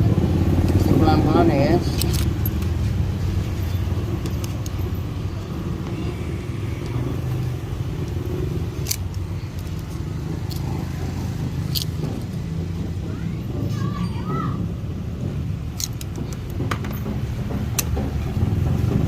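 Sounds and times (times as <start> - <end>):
motor vehicles rumbling: 0.0 - 19.0.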